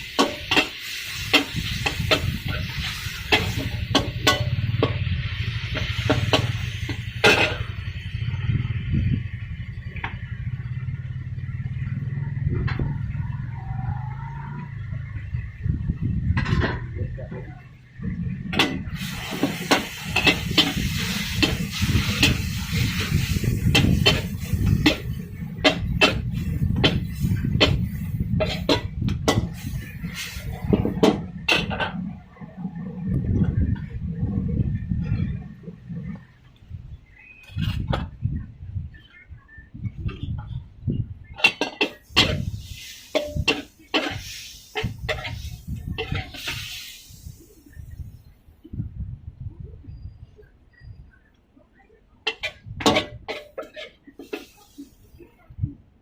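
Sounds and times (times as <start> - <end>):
metal spatula scraping a wok: 0.0 - 8.0, 18.6 - 32.2, 41.4 - 47.4, 52.3 - 55.1
food sizzling: 0.0 - 11.5, 17.9 - 33.0, 41.4 - 48.1, 52.3 - 55.1
low rumble: 1.2 - 41.4.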